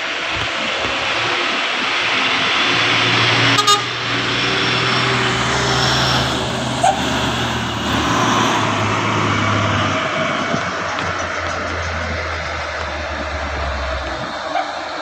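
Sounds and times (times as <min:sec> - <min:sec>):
road and traffic noise: 0:00.0 - 0:15.0
truck engine running: 0:00.0 - 0:15.0
short horn toot: 0:03.5 - 0:04.0.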